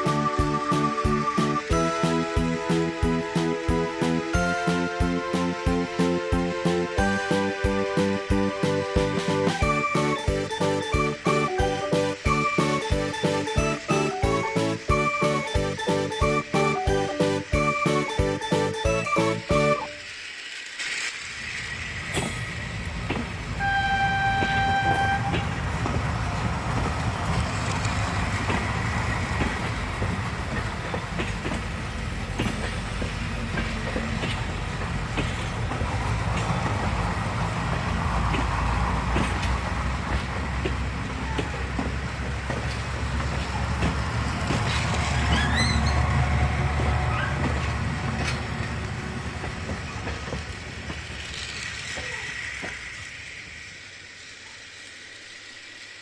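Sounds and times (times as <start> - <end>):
train rumble and clatter: 0.0 - 56.0
train horn: 23.6 - 26.0.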